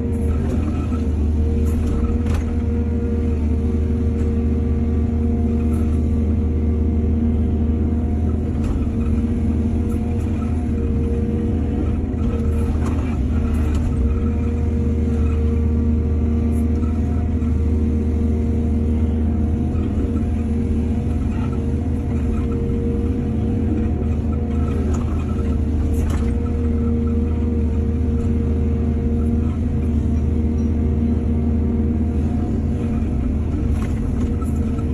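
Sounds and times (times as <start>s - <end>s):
heavy diesel machinery rumbling: 0.0s - 34.9s.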